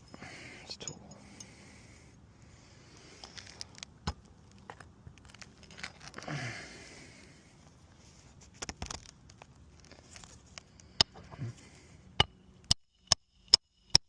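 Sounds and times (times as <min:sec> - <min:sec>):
rustling and tool handling: 0:03.0 - 0:06.4, 0:07.5 - 0:12.3
hammer striking metal tool: 0:12.2 - 0:14.0.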